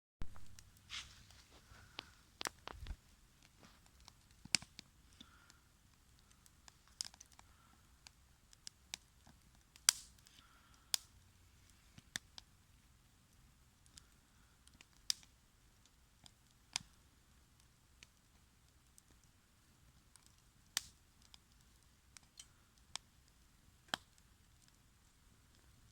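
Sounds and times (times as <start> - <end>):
faint hiss: 0.2 - 9.1, 9.7 - 16.0
campfire crackling: 0.2 - 25.9.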